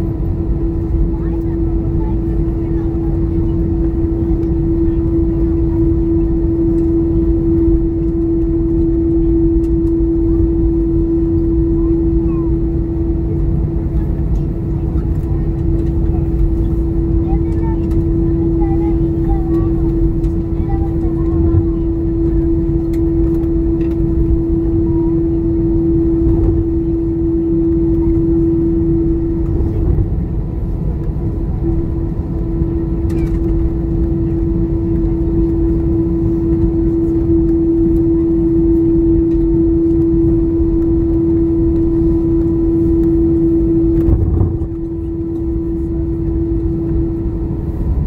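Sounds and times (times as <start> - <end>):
jet engines idling: 0.0 - 48.0.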